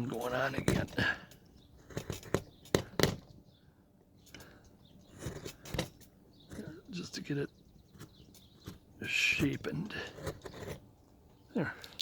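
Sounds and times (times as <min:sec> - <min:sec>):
chisel cutting wood: 0:01.8 - 0:03.3, 0:05.0 - 0:10.9.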